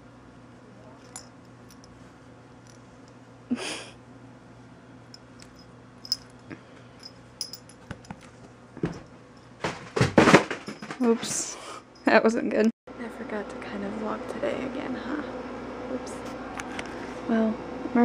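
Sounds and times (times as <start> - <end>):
faint steady hum: 0.0 - 9.8.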